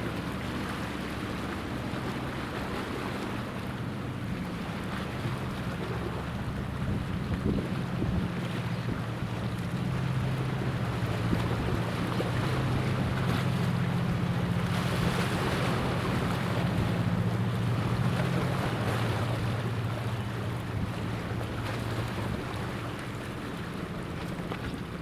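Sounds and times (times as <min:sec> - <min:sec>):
ship engine droning: 0:00.0 - 0:25.0
waves washing: 0:00.0 - 0:25.0
wind noise on microphone: 0:06.8 - 0:08.3.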